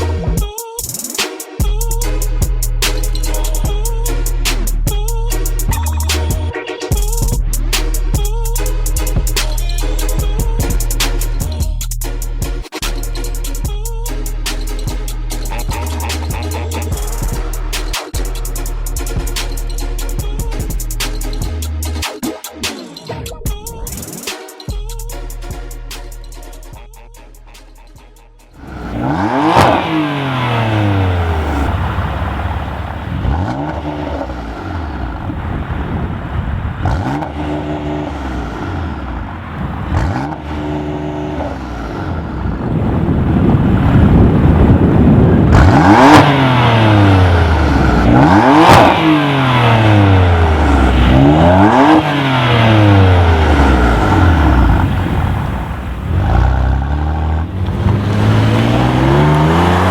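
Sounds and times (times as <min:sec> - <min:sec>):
car engine revving: 0:28.6 - 0:59.9.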